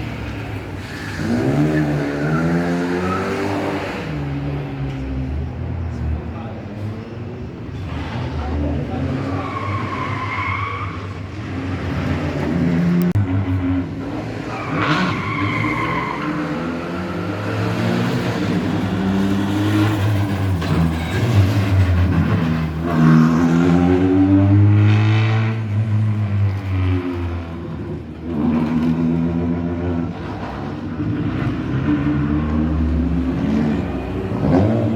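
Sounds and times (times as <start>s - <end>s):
rally car engine revving: 7.7s - 34.9s.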